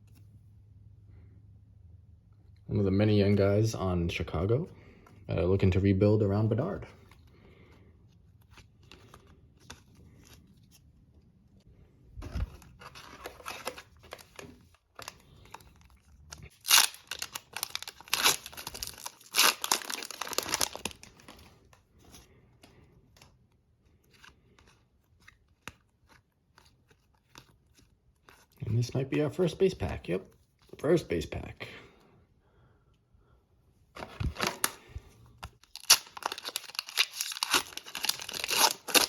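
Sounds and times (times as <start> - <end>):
wrapper tearing and crinkling: 12.8 - 21.4, 35.6 - 39.0.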